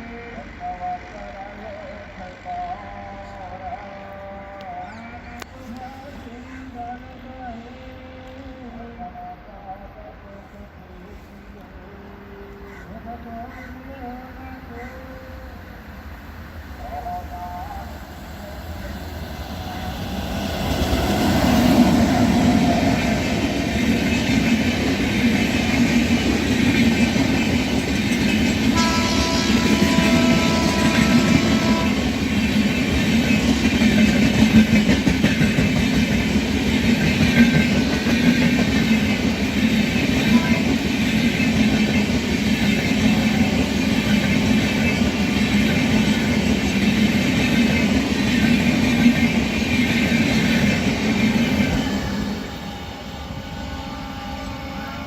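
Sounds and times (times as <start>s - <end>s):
train coaches rumbling past: 0.0s - 55.0s
locomotive horn blast: 28.7s - 32.4s, 52.3s - 55.0s.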